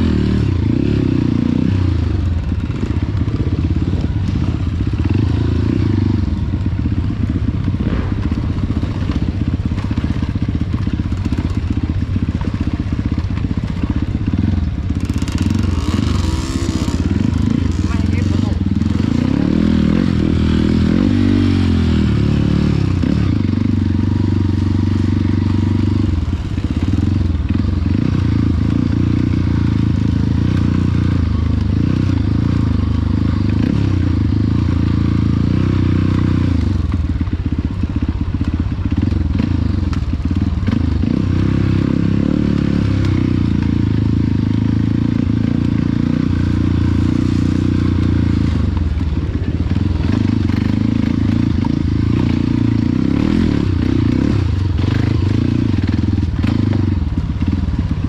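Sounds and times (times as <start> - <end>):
motorcycle engines idling: 0.0 - 58.0.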